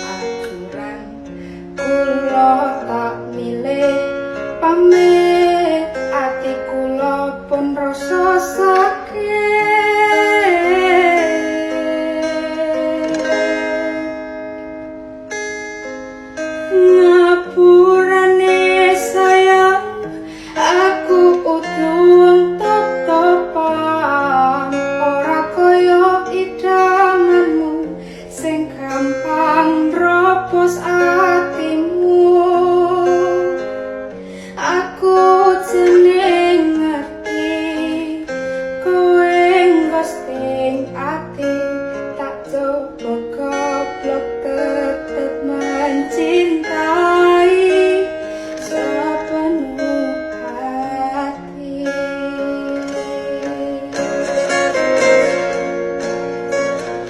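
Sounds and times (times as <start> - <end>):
person singing: 0.0 - 14.4, 16.6 - 55.8
plucked guitar: 0.0 - 57.0.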